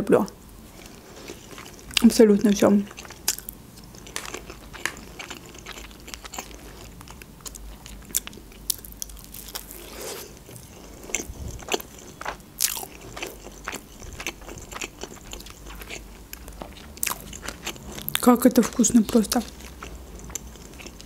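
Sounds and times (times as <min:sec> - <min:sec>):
wet chewing and mouth smacks: 0:02.9 - 0:18.2.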